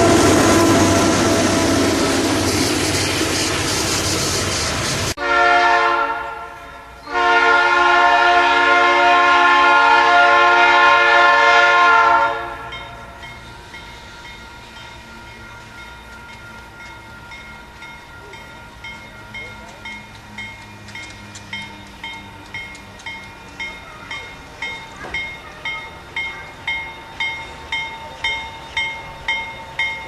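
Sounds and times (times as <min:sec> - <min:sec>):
train air horn blasts: 0:00.0 - 0:02.6, 0:05.2 - 0:13.2
distant train rumble: 0:00.0 - 0:30.0
freight train wheels on rails: 0:00.0 - 0:30.0.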